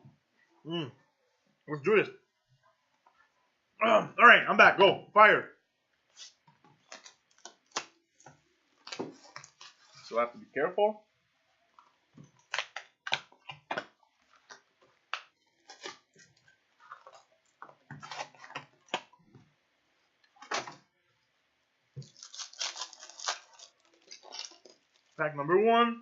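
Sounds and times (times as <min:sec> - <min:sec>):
packaging crinkling and tearing: 0:06.2 - 0:10.1, 0:12.4 - 0:17.3, 0:22.0 - 0:25.2.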